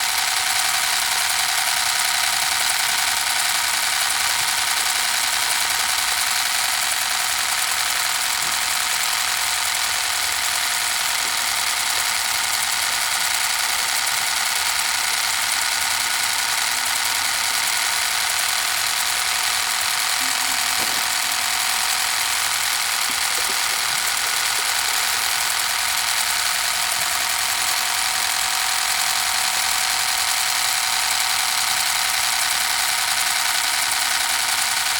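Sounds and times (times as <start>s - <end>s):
small water pump engine buzzing: 0.0s - 34.9s.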